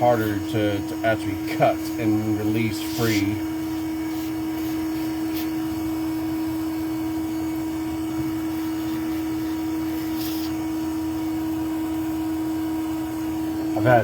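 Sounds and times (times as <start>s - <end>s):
vacuum motor hum: 0.0s - 14.0s.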